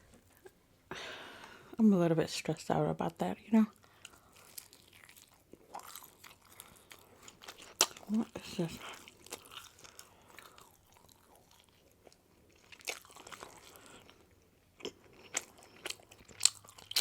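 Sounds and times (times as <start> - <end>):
chewing pizza: 3.8 - 17.0
crunchy bites: 4.4 - 8.2, 12.6 - 14.2, 14.8 - 17.0.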